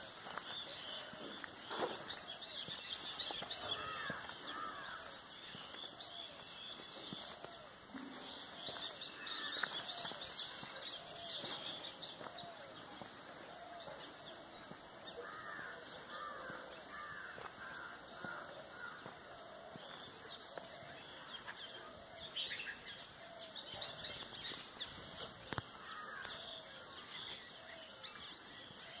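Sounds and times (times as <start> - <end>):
birds calling and chirping: 0.0 - 29.0.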